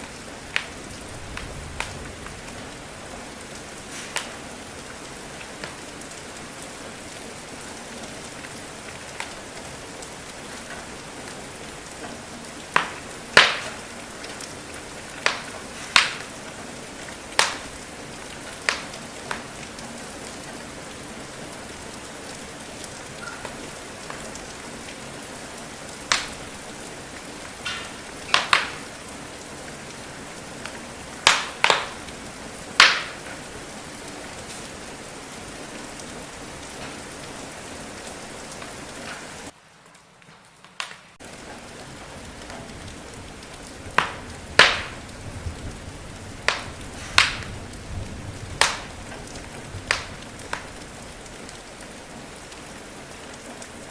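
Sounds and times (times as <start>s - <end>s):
steady rain hiss: 0.0s - 53.9s
wood fire crackling: 0.0s - 53.9s.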